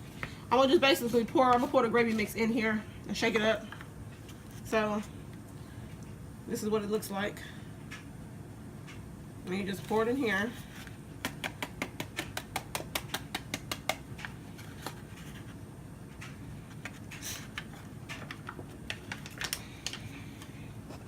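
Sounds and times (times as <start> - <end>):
powder tapping into plastic bottle: 11.2 - 14.0.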